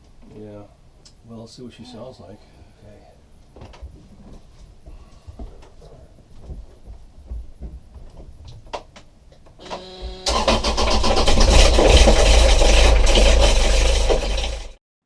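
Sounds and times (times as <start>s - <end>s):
starter cranking engine: 9.7s - 14.8s
diesel engine running with rattling: 10.3s - 14.7s.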